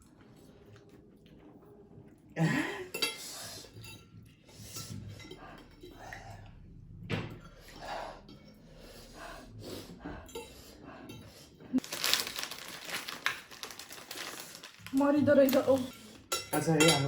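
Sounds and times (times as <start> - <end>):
cutlery clinking on bowls: 2.9 - 6.6, 10.2 - 11.4, 15.5 - 17.0.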